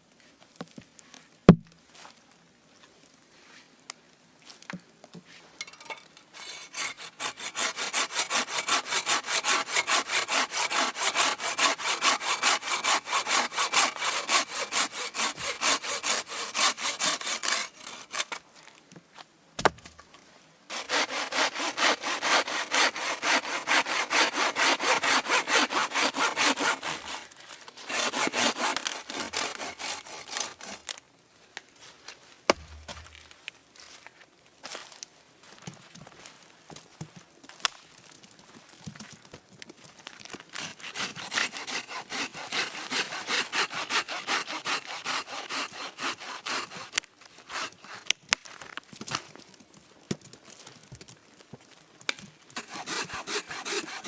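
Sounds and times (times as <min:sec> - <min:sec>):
hand saw cutting wood: 0:06.4 - 0:18.4, 0:20.7 - 0:30.9, 0:40.6 - 0:48.2, 0:52.6 - 0:54.0
sharp knock: 0:32.5 - 0:33.1.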